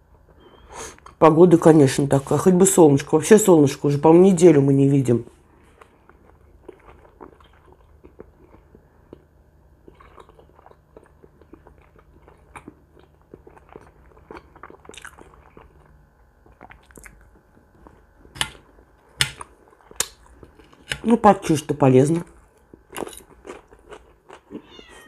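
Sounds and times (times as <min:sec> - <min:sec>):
person chewing food: 0:05.6 - 0:21.1, 0:22.2 - 0:25.0.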